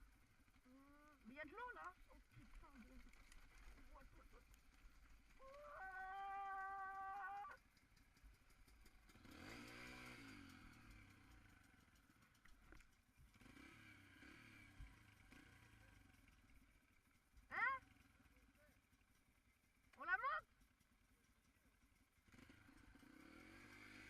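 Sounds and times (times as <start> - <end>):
distant dirt bike engine revving: 5.4 - 12.4, 13.3 - 18.8, 22.2 - 24.0.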